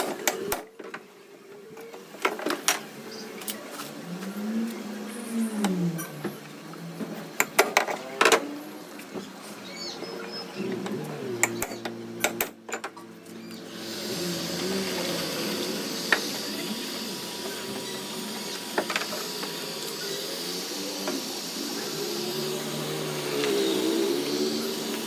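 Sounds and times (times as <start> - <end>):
machine blowing hiss: 13.5 - 25.0.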